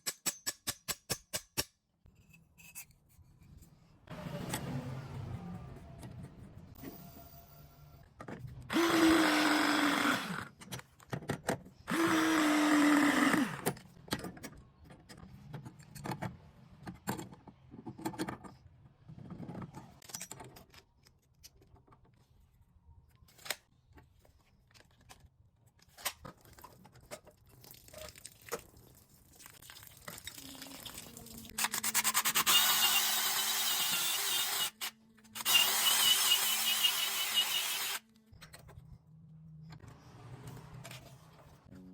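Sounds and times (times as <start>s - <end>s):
cordless drill running: 8.7s - 10.5s, 11.9s - 13.7s, 32.4s - 38.0s.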